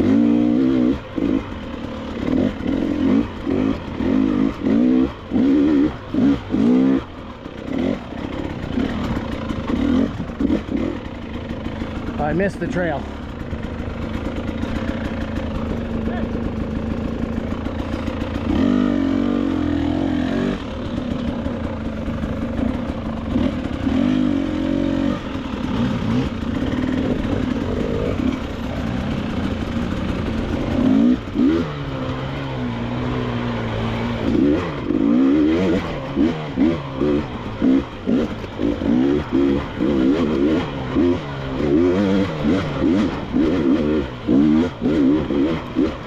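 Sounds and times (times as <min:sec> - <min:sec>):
dirt bike engine revving: 0:00.0 - 0:46.0.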